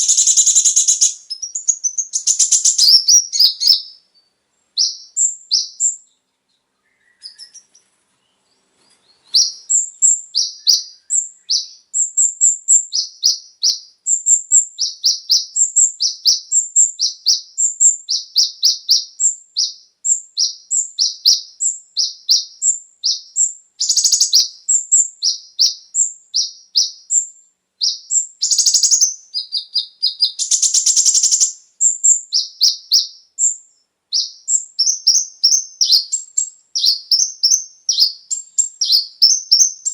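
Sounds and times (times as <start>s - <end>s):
buzzy bird trills: 0.0s - 4.0s, 22.0s - 33.6s
sunbird chirping: 0.0s - 39.9s.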